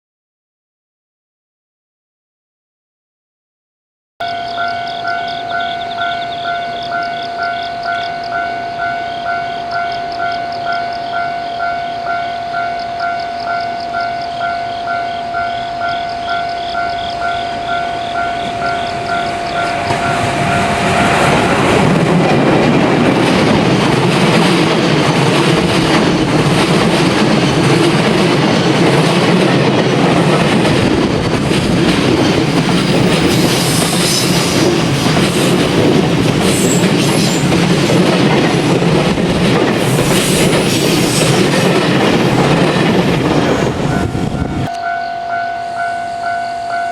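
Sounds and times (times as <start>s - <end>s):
level-crossing alarm ringing: 4.2s - 23.5s, 40.4s - 46.9s
train passing: 4.2s - 46.9s
wheels clattering over rail joints: 15.2s - 44.5s.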